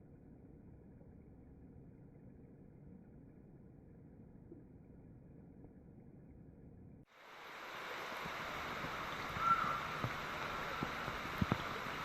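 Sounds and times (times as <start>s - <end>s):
rain hissing: 7.1s - 12.0s
raindrop pops: 8.2s - 12.0s.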